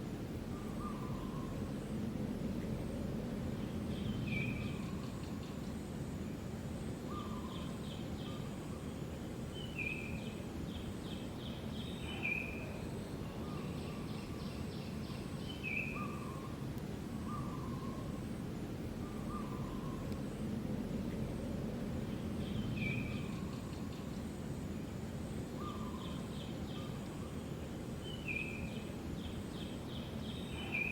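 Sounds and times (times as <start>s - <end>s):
outdoor background hum: 0.0s - 30.9s
birds whistling: 17.2s - 18.2s.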